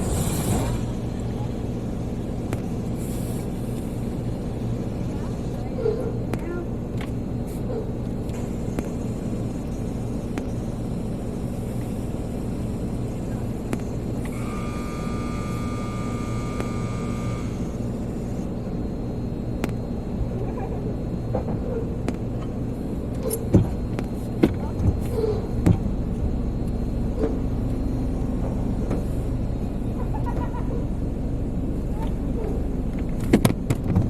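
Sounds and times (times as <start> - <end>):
car wash machinery rumble: 0.0 - 34.0
high whining tone: 14.2 - 18.6.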